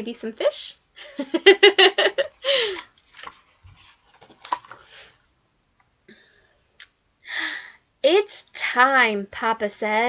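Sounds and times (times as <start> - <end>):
paper pages rustling: 2.8 - 5.2.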